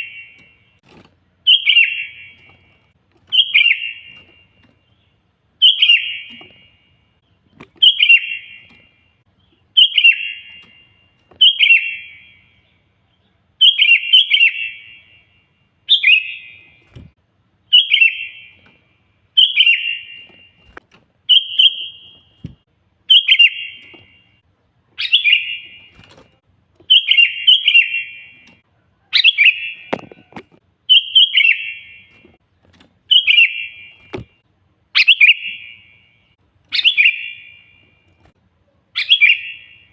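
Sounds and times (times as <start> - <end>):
bulbul warbling song: 0.0 - 6.9, 7.5 - 12.7, 17.7 - 18.8, 19.4 - 24.4, 25.0 - 26.2, 26.8 - 32.4, 33.1 - 34.4, 35.0 - 36.1, 36.7 - 37.8, 39.0 - 39.9.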